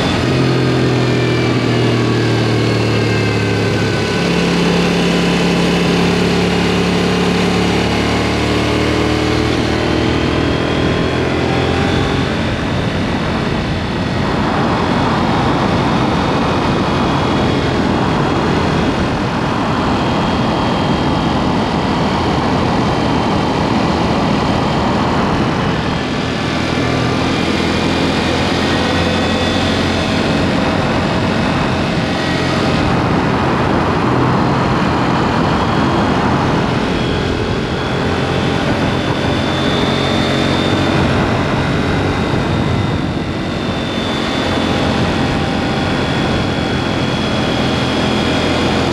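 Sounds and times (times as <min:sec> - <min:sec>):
motorcycle engine revving: 0:00.0 - 0:48.9
road noise: 0:00.0 - 0:48.9
rushing wind: 0:00.0 - 0:48.9.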